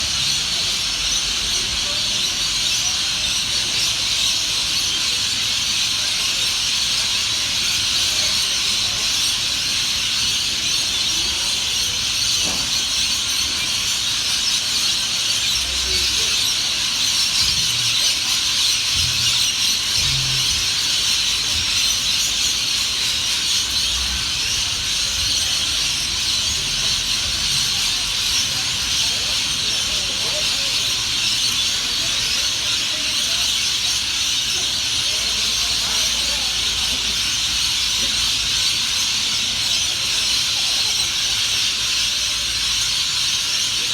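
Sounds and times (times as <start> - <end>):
chorus of birds chirping: 0.0 - 43.9.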